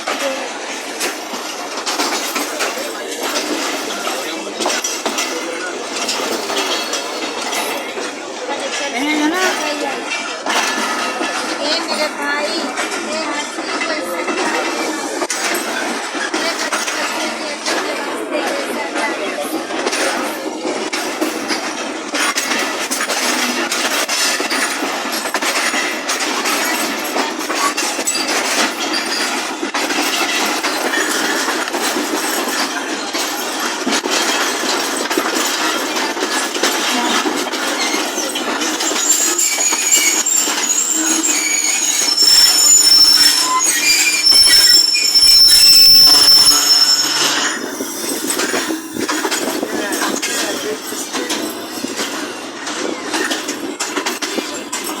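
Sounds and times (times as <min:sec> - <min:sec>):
train rattling on the track: 0:00.0 - 0:55.0
high-pitched wheel squeal: 0:37.8 - 0:48.5.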